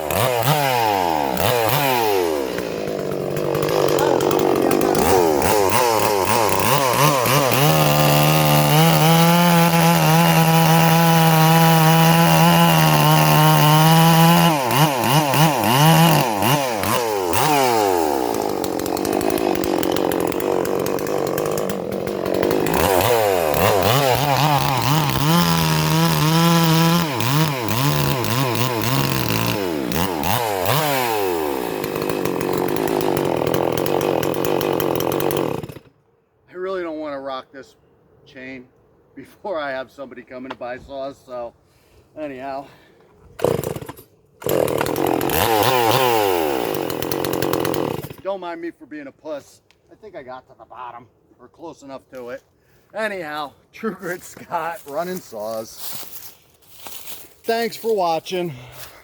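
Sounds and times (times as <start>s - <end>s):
chainsaw cutting wood: 0.0s - 36.0s, 43.2s - 48.4s, 54.3s - 59.0s.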